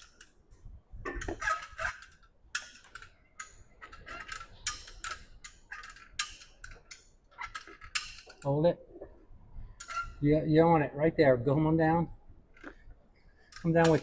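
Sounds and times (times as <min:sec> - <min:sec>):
chain hoist clicking: 0:01.2 - 0:08.5.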